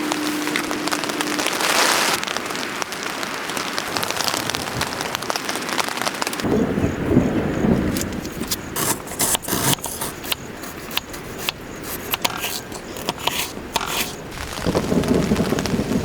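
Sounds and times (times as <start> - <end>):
short scrapes and crackles: 7.8 - 16.0.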